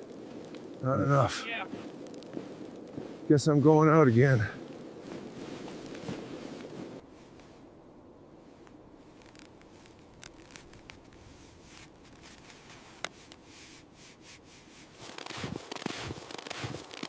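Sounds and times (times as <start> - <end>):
rustling: 0.0 - 7.8, 8.4 - 17.0
rubbing and scraping: 9.2 - 17.0.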